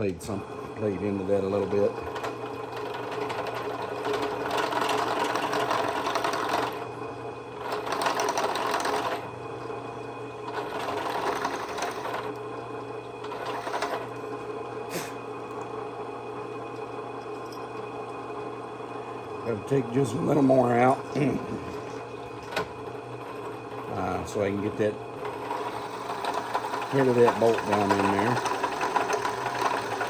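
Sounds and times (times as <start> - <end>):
drill press motor hum: 0.0 - 30.0
drill bit cutting metal: 13.3 - 14.2, 22.5 - 30.0.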